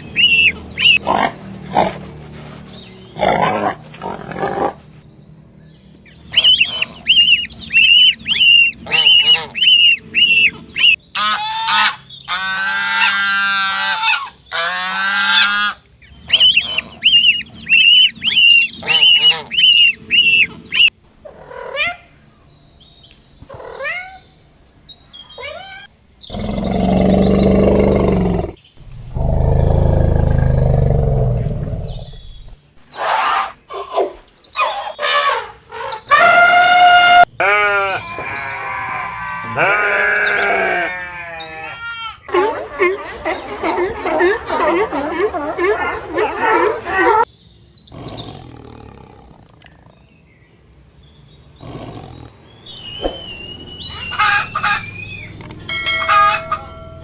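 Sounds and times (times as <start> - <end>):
long rough animal calls: 26.3 - 32.5
quick rising animal calls: 26.3 - 32.5.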